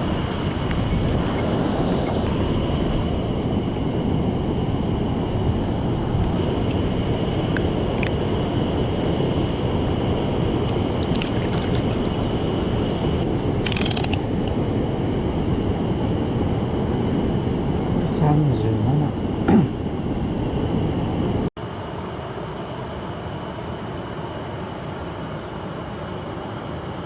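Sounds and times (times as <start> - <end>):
rapid mechanical clicking: 13.6 - 14.3.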